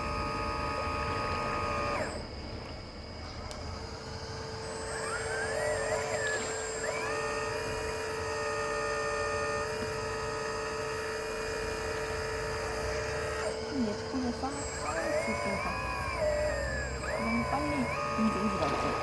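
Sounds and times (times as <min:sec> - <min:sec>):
hydraulic pump whining: 0:00.0 - 0:19.0.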